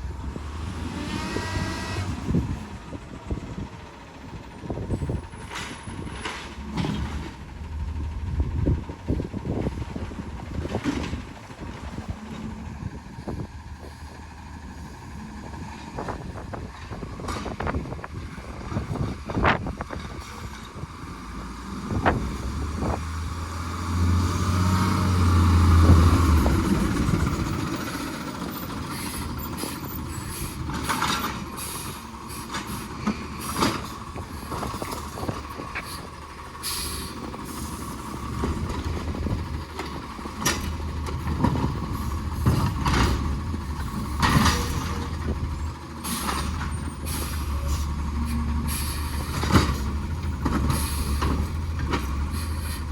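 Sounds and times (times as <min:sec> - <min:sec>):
garbage truck engine revving: 0:00.0 - 0:03.8, 0:04.4 - 0:52.9
knocks and clanks: 0:38.3 - 0:45.4.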